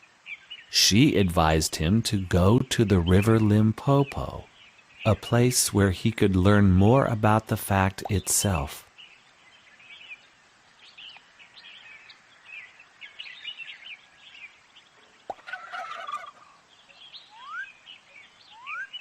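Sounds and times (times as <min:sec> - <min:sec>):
birds chirping: 0:00.0 - 0:19.0
soft hiss: 0:03.6 - 0:15.7
warbling bird call: 0:15.2 - 0:16.6, 0:17.2 - 0:17.8, 0:18.5 - 0:19.0.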